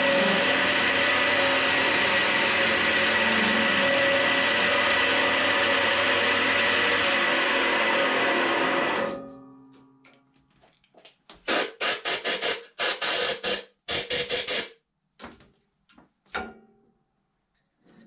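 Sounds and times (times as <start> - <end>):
wood lathe winding down: 0.0 - 9.1.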